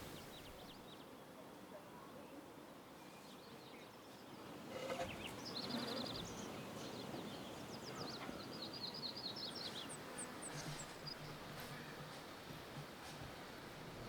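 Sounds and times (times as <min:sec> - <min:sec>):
steady rustling noise: 0:00.0 - 0:00.8.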